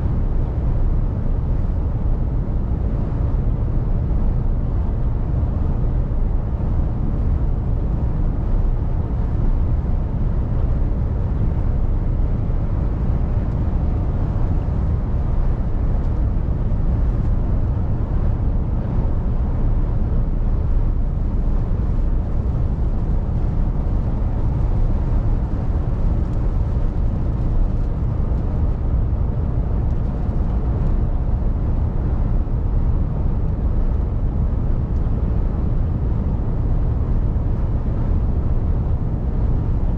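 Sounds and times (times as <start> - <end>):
road noise: 8.3 - 39.9.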